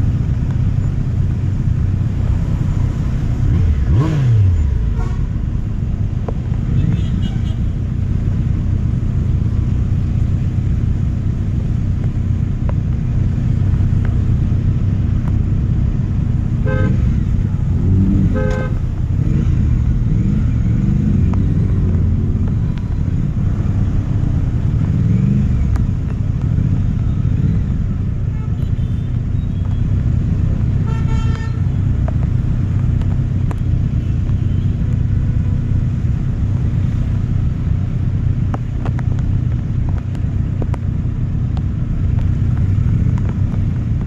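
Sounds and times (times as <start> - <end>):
motorcycle engine running: 0.0 - 44.0
horn toots: 3.5 - 5.5, 6.7 - 7.8, 16.6 - 17.3, 17.9 - 19.4, 30.7 - 31.8.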